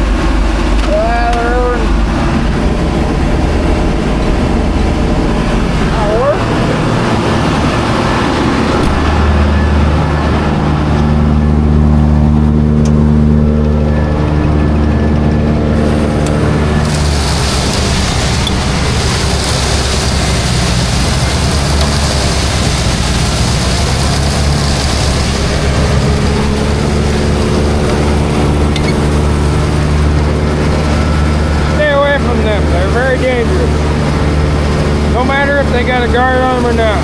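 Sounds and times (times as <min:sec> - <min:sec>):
tractor engine running: 0:00.0 - 0:37.0
loud rushing hiss: 0:15.6 - 0:37.0.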